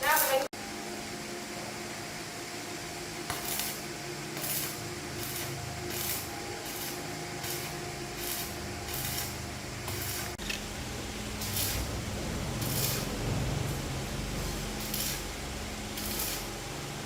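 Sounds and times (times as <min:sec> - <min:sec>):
machine hum: 0:00.0 - 0:17.0
short hissing bursts: 0:03.3 - 0:10.4, 0:11.3 - 0:13.2, 0:14.4 - 0:16.6.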